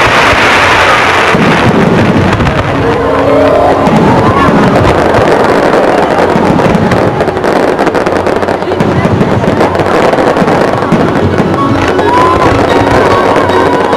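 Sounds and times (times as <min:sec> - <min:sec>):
fireworks crackling and banging: 0:00.0 - 0:13.9
rising tone: 0:02.5 - 0:05.8.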